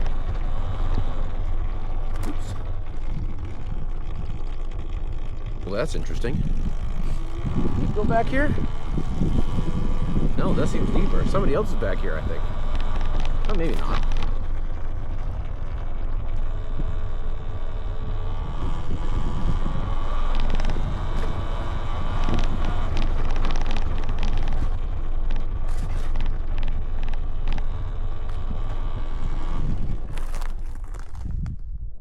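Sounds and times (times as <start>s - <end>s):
faint steady whine: 0.0s - 32.0s
wind buffeting microphone: 0.0s - 32.0s
clicks and knocks of bike: 18.8s - 31.6s.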